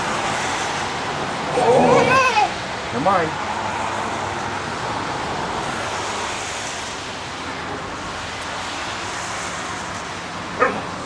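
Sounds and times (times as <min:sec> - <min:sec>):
short vocal sound: 0:01.5 - 0:02.5.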